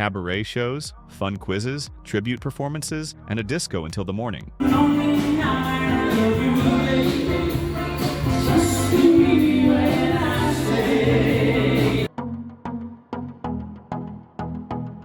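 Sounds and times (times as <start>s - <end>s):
background music with singing: 4.5s - 12.4s
sparse music with regular beat: 4.6s - 12.1s.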